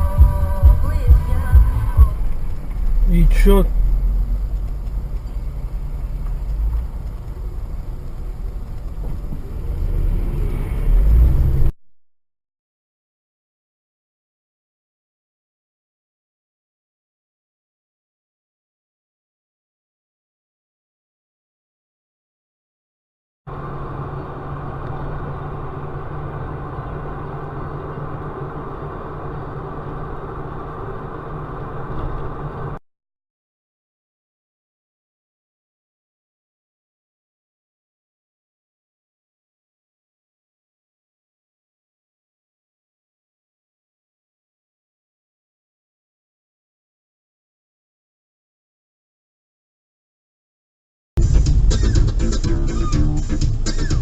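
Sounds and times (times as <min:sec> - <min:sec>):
road noise: 0:00.0 - 0:11.8, 0:23.5 - 0:32.8, 0:51.2 - 0:54.0
vehicle engine rumble: 0:00.0 - 0:11.8, 0:23.5 - 0:32.8, 0:51.2 - 0:54.0.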